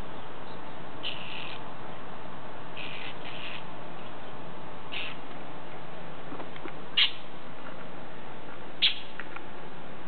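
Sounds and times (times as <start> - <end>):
sharp bird calls: 0.0 - 1.6, 2.8 - 3.7, 4.9 - 5.2, 7.0 - 7.2, 8.8 - 9.2
steady background hiss: 0.0 - 10.0.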